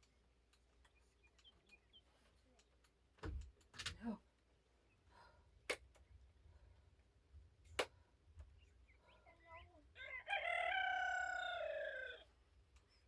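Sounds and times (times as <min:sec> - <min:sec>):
rooster crowing: 0:10.0 - 0:12.3.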